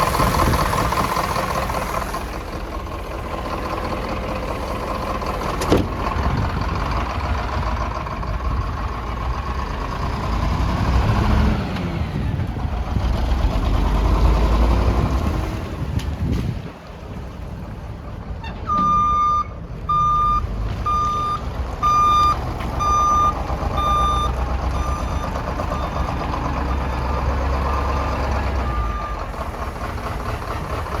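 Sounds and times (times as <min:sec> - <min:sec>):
truck engine running: 0:00.0 - 0:31.0
truck backup alarm beeping: 0:18.4 - 0:30.8.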